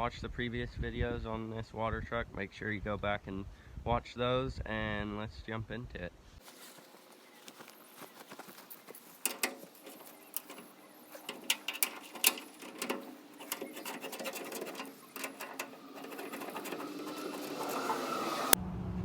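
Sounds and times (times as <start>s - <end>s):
wrench clicking and clanking: 8.8s - 18.6s.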